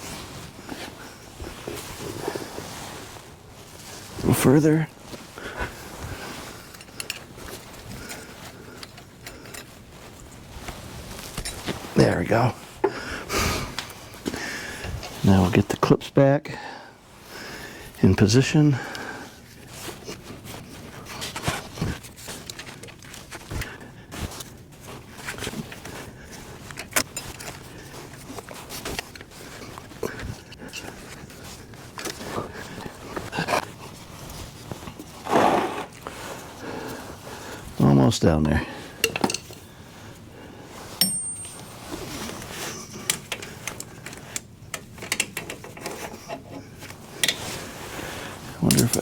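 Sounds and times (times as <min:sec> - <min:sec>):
tool clicks and metal knocks: 0:39.0 - 0:39.6, 0:41.0 - 0:41.9
sharp metallic ping: 0:41.0 - 0:41.8.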